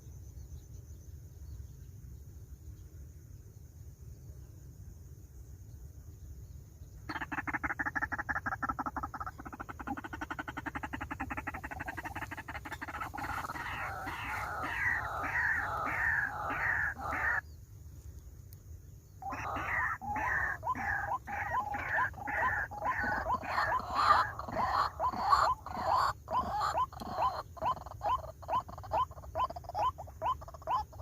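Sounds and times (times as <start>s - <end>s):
bird rattling churr: 7.1s - 17.4s, 19.2s - 29.1s
bird falling croaks: 8.8s - 17.4s.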